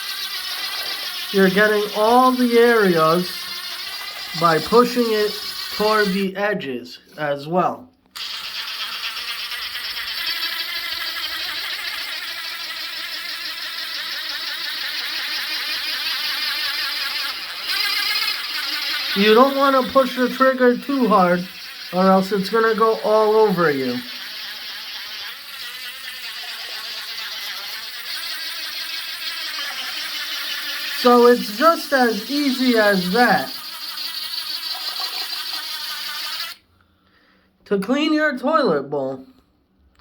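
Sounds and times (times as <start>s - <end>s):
brush scrubbing toilet bowl: 0.0s - 6.3s, 8.2s - 36.6s
impact driver motor whir: 8.1s - 36.6s.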